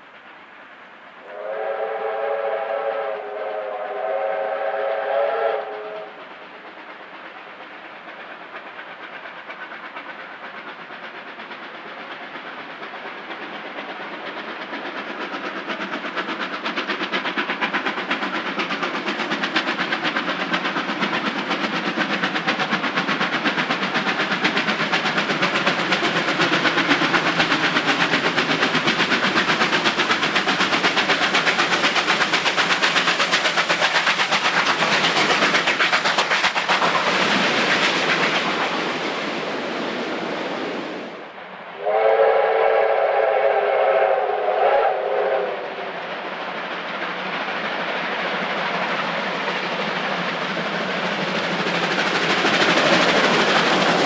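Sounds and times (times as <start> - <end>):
steam locomotive whistle chord: 1.2 - 6.2, 41.8 - 45.9.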